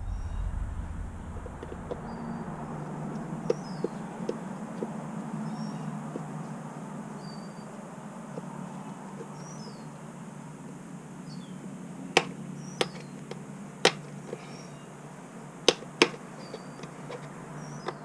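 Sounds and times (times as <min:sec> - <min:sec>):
steady low hum: 0:00.0 - 0:04.7.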